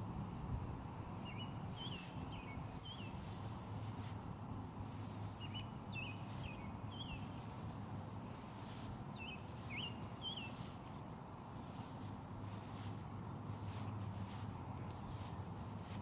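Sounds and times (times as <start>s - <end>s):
low background noise: 0.0s - 16.0s
small bird chirping: 1.3s - 3.3s, 5.1s - 7.8s, 8.6s - 12.7s.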